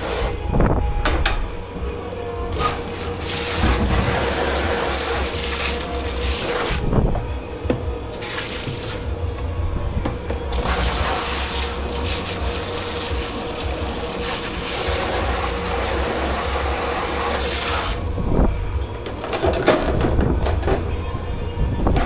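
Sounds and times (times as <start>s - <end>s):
water gushing into sink: 2.5s - 7.0s, 8.1s - 9.2s, 10.5s - 18.0s.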